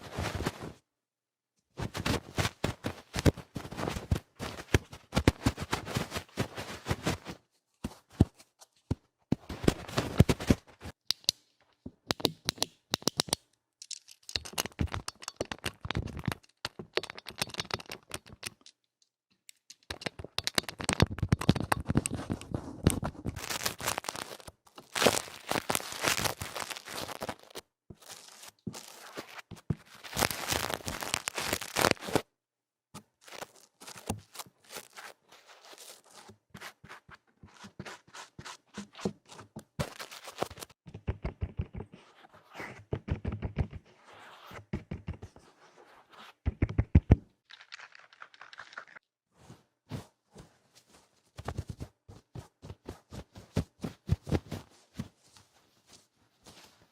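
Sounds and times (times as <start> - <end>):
scratching and rubbing on microphone: 21.0 - 32.2, 33.2 - 47.0.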